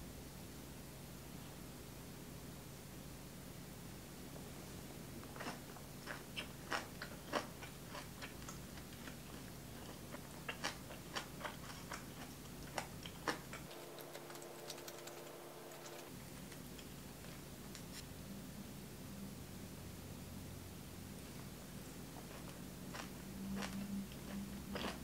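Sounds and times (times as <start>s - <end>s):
faint steady hum: 0.0s - 25.0s
person chewing food: 5.2s - 17.4s, 22.2s - 25.0s.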